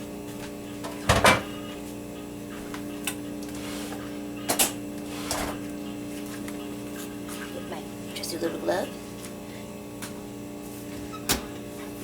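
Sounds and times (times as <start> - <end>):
kitchen knocks and clicks: 0.8 - 1.5.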